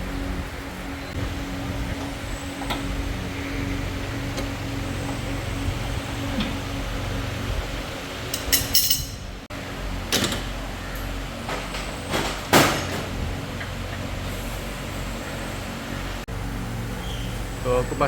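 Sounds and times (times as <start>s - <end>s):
steady low hum: 0.0s - 12.4s
tools and metal parts clanking: 8.3s - 9.4s.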